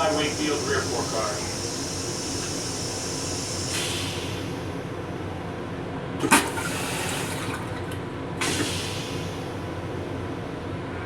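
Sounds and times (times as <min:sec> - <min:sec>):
toilet hiss: 0:00.0 - 0:04.6, 0:06.2 - 0:07.8, 0:08.4 - 0:09.4
moving train rumble: 0:00.0 - 0:06.0
toilet flushing whoosh: 0:06.2 - 0:09.4.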